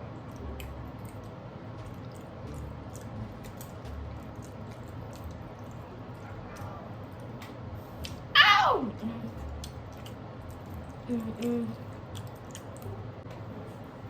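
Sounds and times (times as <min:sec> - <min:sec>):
chewing food: 0:00.0 - 0:08.2, 0:09.2 - 0:13.5
wet mouth clicks and smacks: 0:12.1 - 0:12.9.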